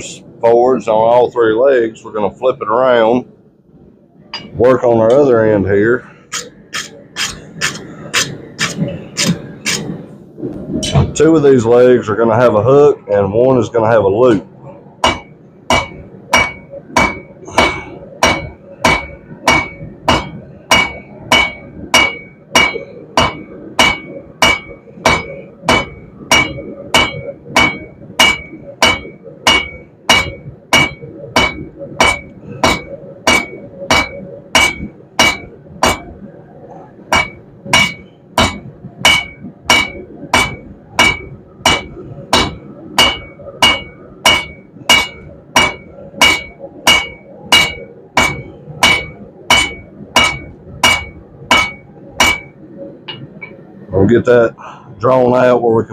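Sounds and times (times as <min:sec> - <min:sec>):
hammer ringing on anvil: 0:04.4 - 0:04.6, 0:15.0 - 0:36.1, 0:37.1 - 0:53.6.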